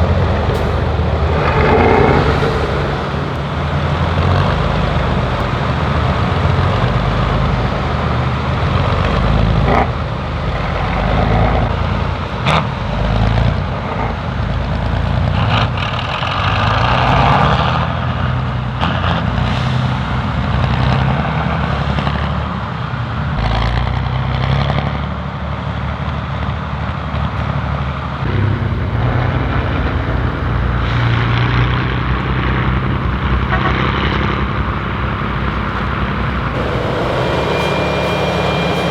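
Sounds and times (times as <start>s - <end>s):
diesel truck engine under load: 0.0s - 7.8s, 28.3s - 38.9s.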